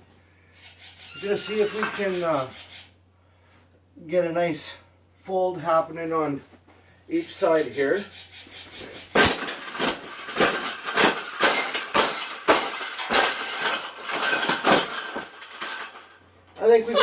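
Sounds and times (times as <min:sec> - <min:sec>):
metal cage bars rattling: 0:08.6 - 0:17.0.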